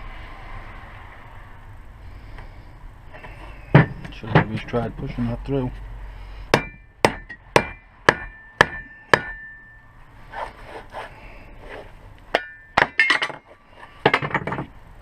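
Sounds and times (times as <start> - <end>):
hammer strikes on steel: 6.5 - 9.8, 12.3 - 13.4
metal rattle: 12.3 - 14.8.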